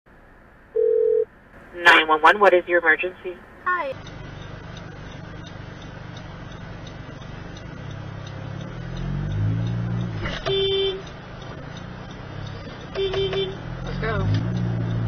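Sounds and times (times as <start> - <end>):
road noise inside car: 0.1 - 15.0
car engine accelerating: 3.4 - 15.0
car horn honk: 10.2 - 11.1, 12.9 - 13.7.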